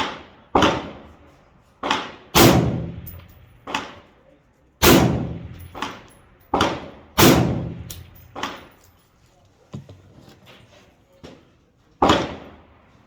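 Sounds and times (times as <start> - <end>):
rifle shots: 0.0 - 1.1, 1.8 - 4.0, 4.8 - 8.7.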